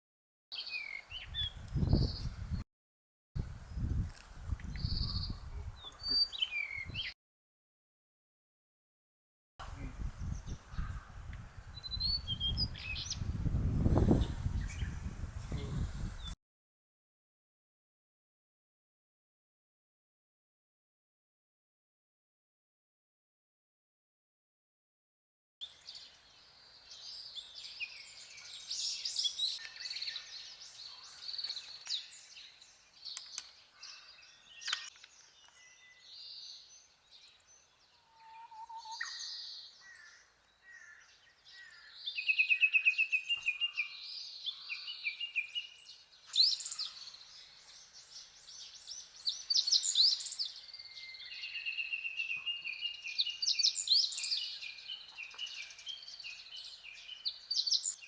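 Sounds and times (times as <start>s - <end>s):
songbirds singing and calling: 0.6s - 2.6s, 3.4s - 7.2s, 9.6s - 16.4s, 25.6s - 58.0s.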